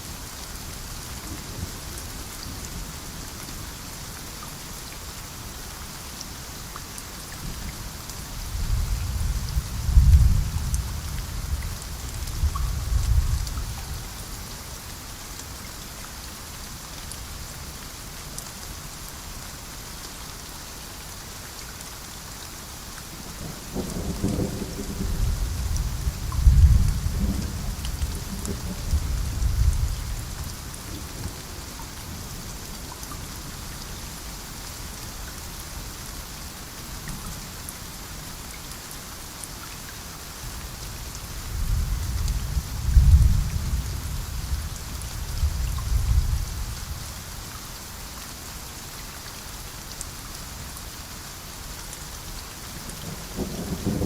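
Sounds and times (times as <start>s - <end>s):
steady rain: 0.0s - 54.0s
thunder rumbling: 24.0s - 30.4s.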